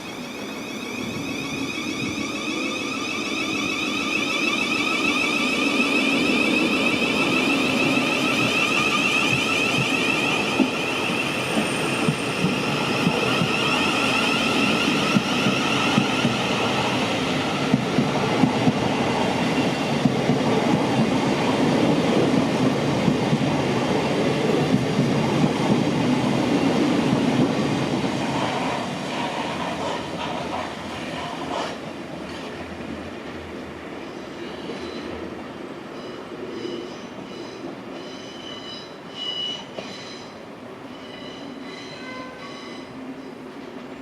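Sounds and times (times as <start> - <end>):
train wheels clattering on rails: 4.6 - 32.6.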